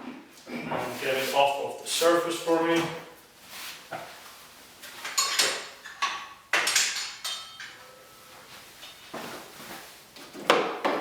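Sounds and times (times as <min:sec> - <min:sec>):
knocks and clattering on workbench: 0:05.0 - 0:07.8, 0:10.4 - 0:11.0.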